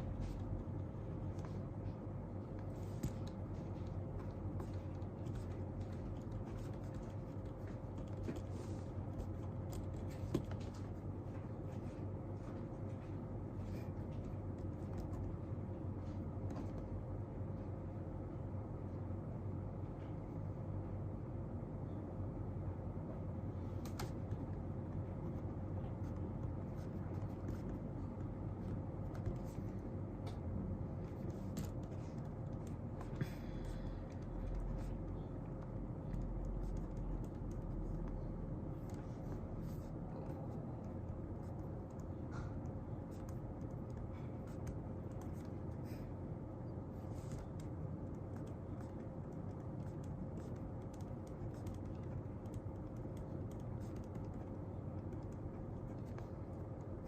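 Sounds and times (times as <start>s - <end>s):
faint constant tone: 0.0s - 57.0s
low room hum: 0.0s - 57.0s
pen writing on paper: 2.8s - 10.8s, 25.8s - 29.8s, 31.0s - 46.1s, 46.9s - 57.0s
keyboard typing: 2.8s - 11.2s, 25.2s - 46.0s, 46.9s - 57.0s.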